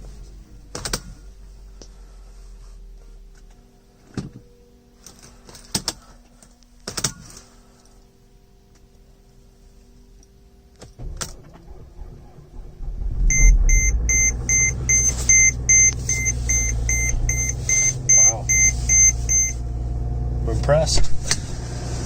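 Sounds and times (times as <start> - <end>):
diesel engine starting and running: 10.7 - 22.0
car warning chime beeping: 13.3 - 19.7.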